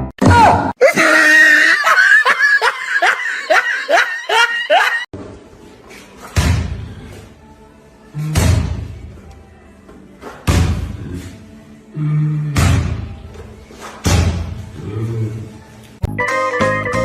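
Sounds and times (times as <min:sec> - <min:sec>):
loud laughter: 0:00.8 - 0:05.1.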